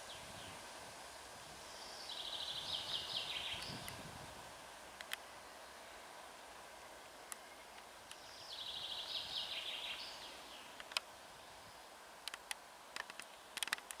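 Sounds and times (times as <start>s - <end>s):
faint steady hiss: 0.0s - 14.0s
songbird trill: 1.6s - 4.1s, 6.8s - 12.0s
sharp clicks: 10.8s - 11.1s, 12.2s - 14.0s.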